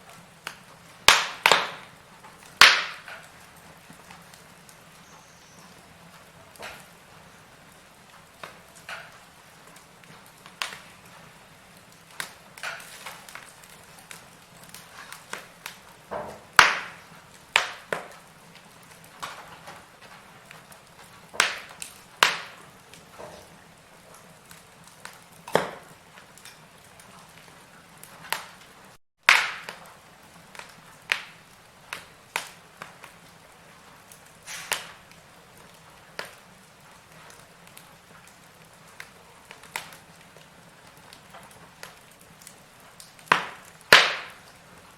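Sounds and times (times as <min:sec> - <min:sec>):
firewood crackling and popping: 0:00.0 - 0:44.9.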